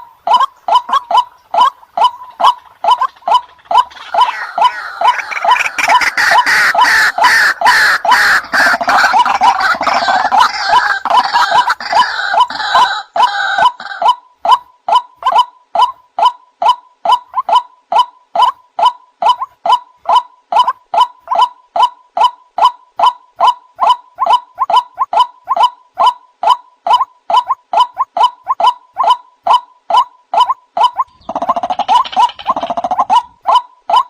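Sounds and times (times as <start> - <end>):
waterhen repeated call notes: 0.0 - 34.0
harsh chorus of overlapping calls: 1.0 - 14.2.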